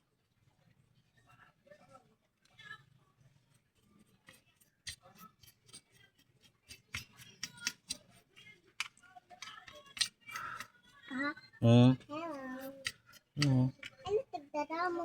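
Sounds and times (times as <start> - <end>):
small parts and tools clicking: 4.1 - 11.5, 12.1 - 14.2.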